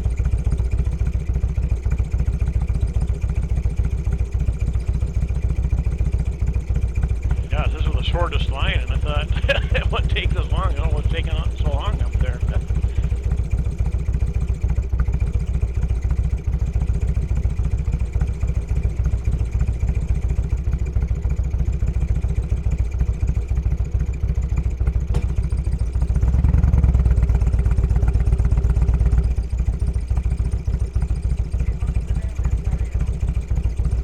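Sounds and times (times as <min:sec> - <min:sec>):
motorcycle engine idling: 0:00.0 - 0:34.0.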